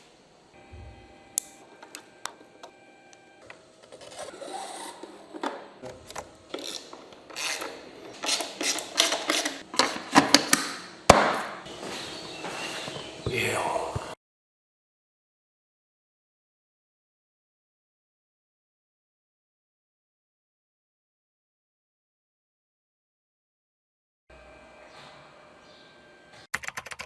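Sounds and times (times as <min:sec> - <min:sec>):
metal and plastic rubbing: 0:03.8 - 0:13.1
hand tools clicking and knocking: 0:06.1 - 0:11.5.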